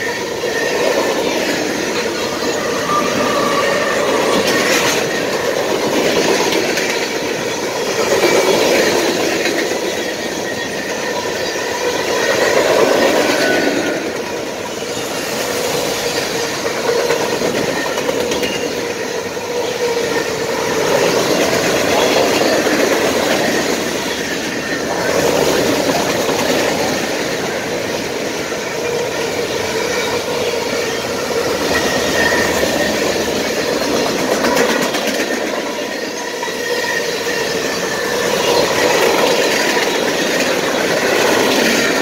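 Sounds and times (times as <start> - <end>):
faint wheel squeal: 0.0 - 5.5, 9.8 - 12.6, 29.8 - 33.3, 35.6 - 39.4
steel wheels on rails: 0.0 - 42.0
wheels clacking over rail joints: 0.0 - 42.0.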